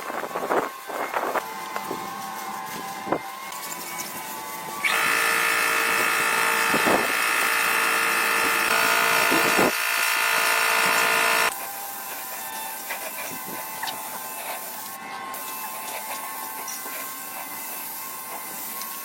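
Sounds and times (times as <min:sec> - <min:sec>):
power tool motor whining: 0:04.8 - 0:11.6.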